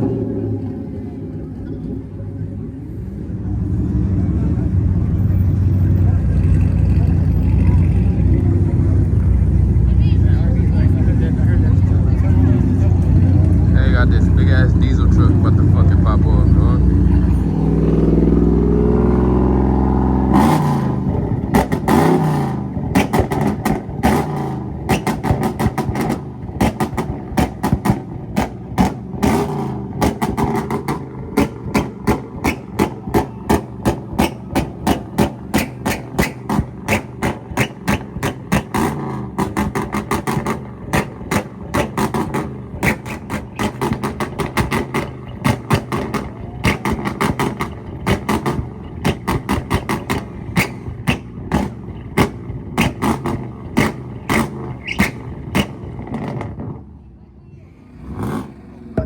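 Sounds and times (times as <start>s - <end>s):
car engine revving: 0.0s - 56.9s, 57.8s - 59.0s
exhaust pops and bangs: 20.0s - 56.9s.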